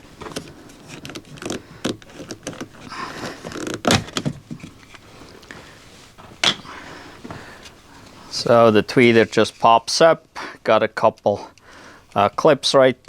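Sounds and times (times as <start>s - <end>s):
plastic clicking and scraping: 0.2s - 5.5s.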